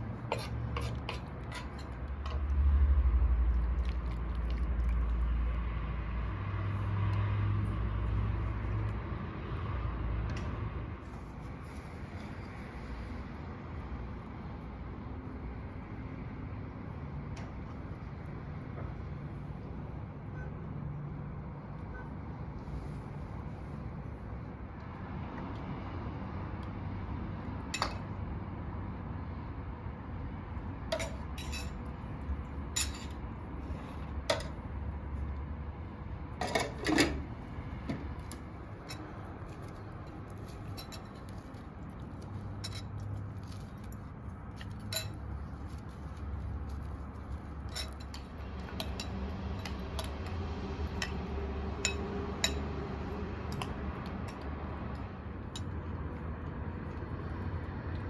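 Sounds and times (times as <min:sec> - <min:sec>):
cutlery and dishes clinking: 0:00.3 - 0:02.0, 0:31.0 - 0:31.8, 0:32.7 - 0:33.2, 0:36.4 - 0:37.2, 0:44.6 - 0:45.3, 0:47.6 - 0:50.1, 0:51.8 - 0:52.7.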